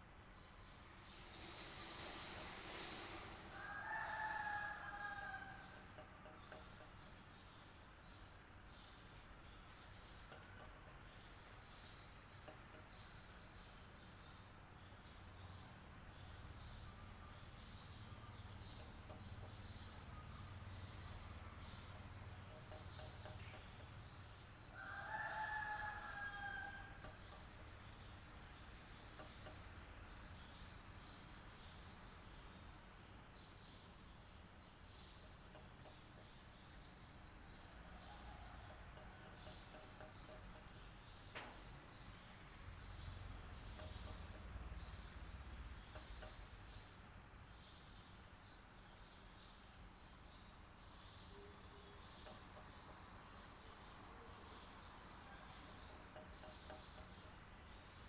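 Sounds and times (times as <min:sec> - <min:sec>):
long crowing call: 0:02.1 - 0:06.1, 0:24.7 - 0:27.5.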